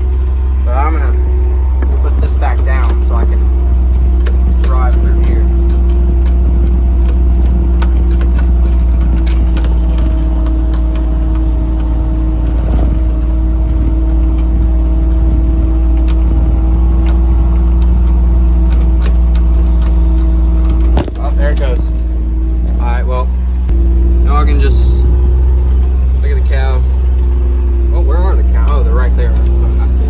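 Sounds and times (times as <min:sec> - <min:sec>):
vehicle engine hum: 0:00.0 - 0:30.0.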